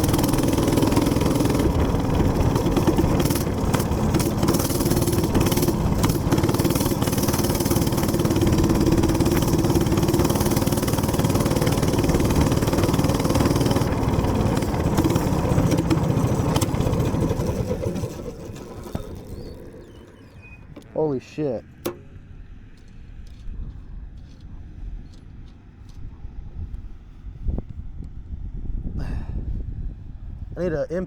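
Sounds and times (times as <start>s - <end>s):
minibike engine running: 0.0s - 21.1s
wind rushing over microphone: 26.2s - 30.8s.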